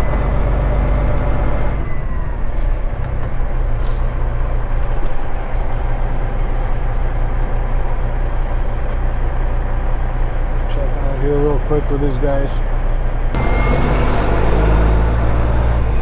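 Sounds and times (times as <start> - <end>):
diesel truck engine running: 0.0 - 16.0
high whine: 13.3 - 16.0.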